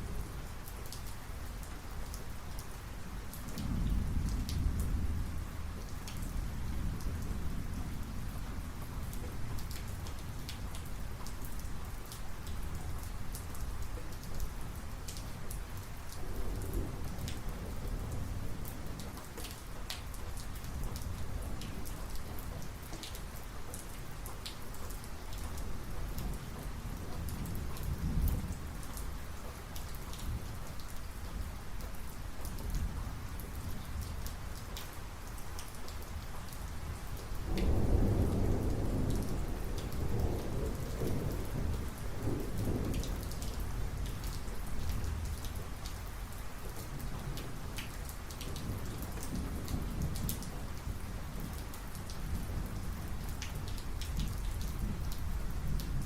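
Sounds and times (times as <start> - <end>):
heavy rain falling: 0.0 - 56.0
raindrops ticking close by: 0.0 - 56.0
thunder rumbling: 37.5 - 44.4.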